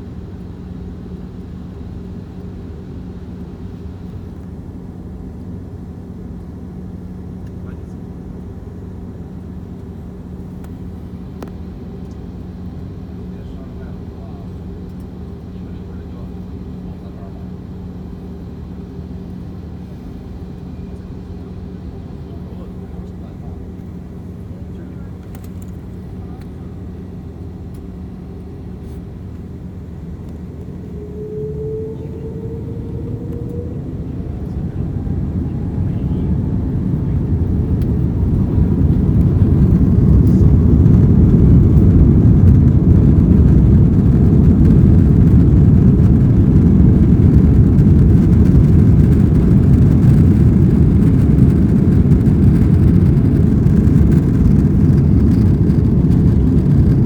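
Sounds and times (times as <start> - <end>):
jet engines spooling up: 28.8 - 57.0.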